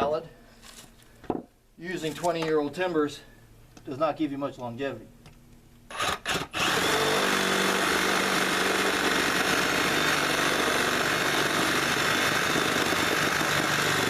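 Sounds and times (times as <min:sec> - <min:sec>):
reciprocating saw cutting wood: 0:05.9 - 0:14.0.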